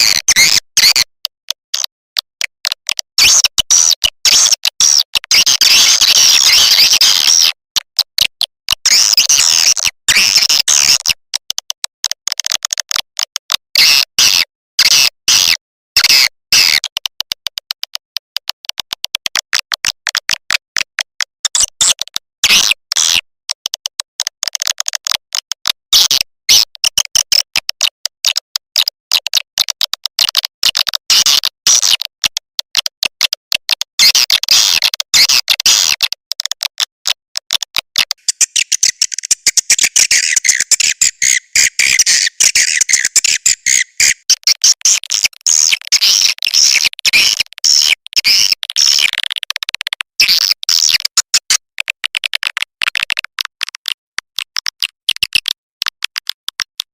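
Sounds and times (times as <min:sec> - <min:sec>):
swiftlets twittering and clicking: 0:38.2 - 0:44.8.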